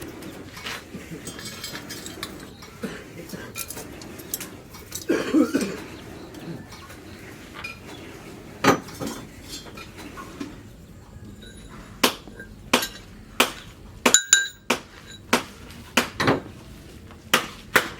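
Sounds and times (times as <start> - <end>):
steel pieces and tools clinking: 0.5 - 6.0, 8.7 - 10.3, 11.3 - 13.1, 14.1 - 15.3.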